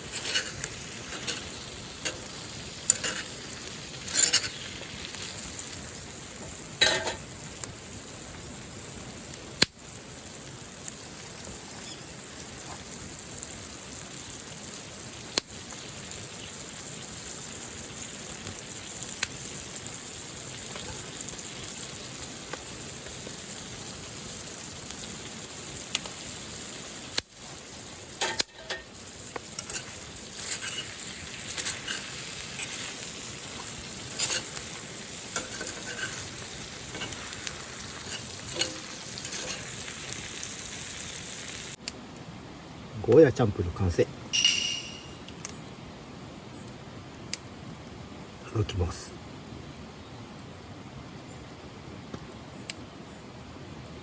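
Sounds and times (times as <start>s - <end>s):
spatula scraping a pan: 0.0s - 4.8s, 28.2s - 28.9s, 29.6s - 40.0s
food sizzling in a pan: 0.0s - 41.8s.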